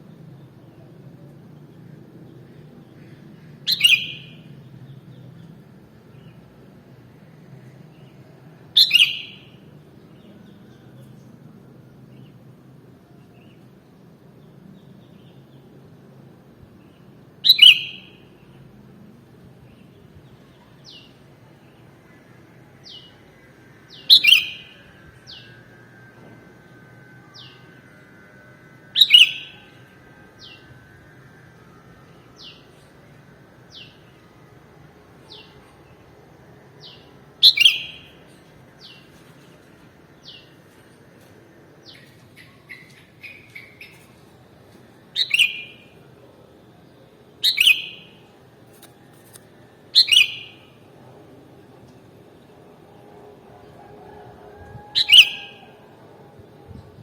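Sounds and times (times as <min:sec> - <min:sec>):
bulbul calling: 0:50.0 - 0:50.6, 0:55.0 - 0:55.8.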